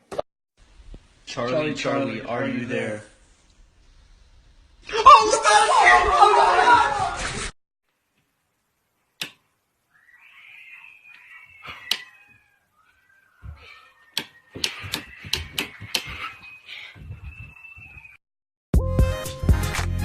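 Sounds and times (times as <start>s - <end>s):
sharp clicks: 9.2s - 9.4s, 11.8s - 12.2s, 14.1s - 16.1s
animal crying: 9.9s - 17.0s.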